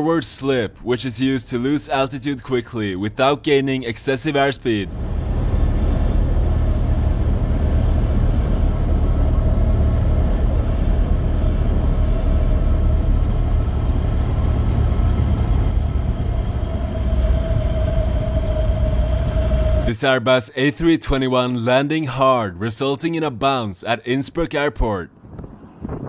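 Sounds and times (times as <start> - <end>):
aircraft engine drone: 0.0 - 22.3
rushing air: 4.6 - 20.1.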